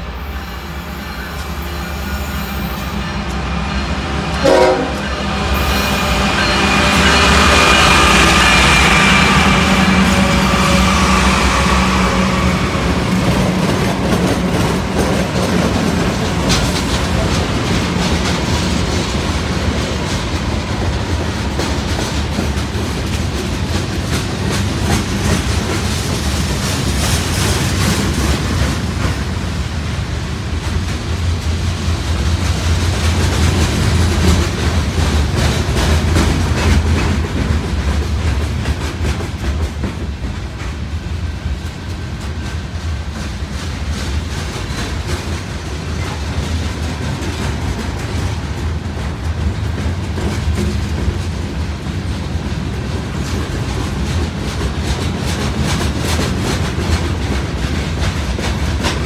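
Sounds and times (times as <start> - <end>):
freight cars rumbling: 0.0 - 59.0
locomotive horn: 0.1 - 13.3
wheels clicking over rail joints: 13.1 - 29.3, 41.6 - 59.0.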